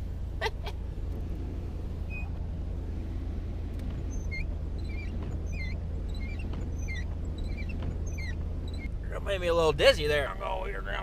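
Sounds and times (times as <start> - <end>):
car cabin rumble: 0.0 - 11.0
short high squeaks: 2.0 - 2.4, 4.0 - 9.0.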